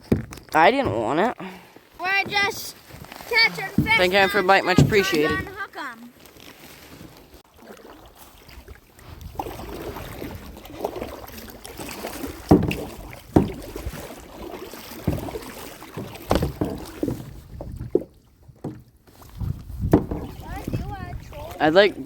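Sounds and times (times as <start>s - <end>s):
knocks and bumps in a kayak: 0.0s - 22.0s
sharp thumps: 3.6s - 5.6s.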